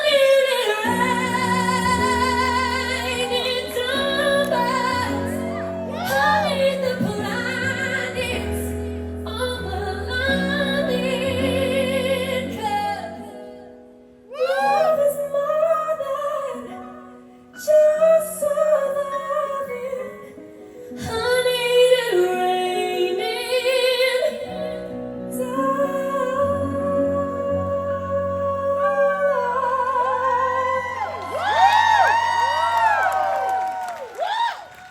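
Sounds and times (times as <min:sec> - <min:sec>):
woman singing: 0:00.0 - 0:34.3.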